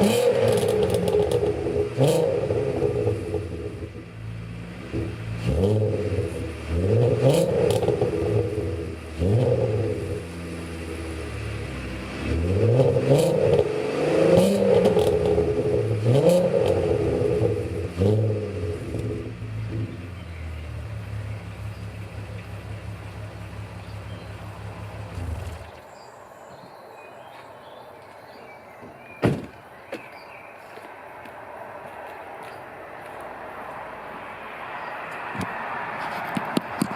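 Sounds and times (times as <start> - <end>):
car engine revving and idling: 0.0 - 25.8
exhaust crackles: 0.0 - 25.9.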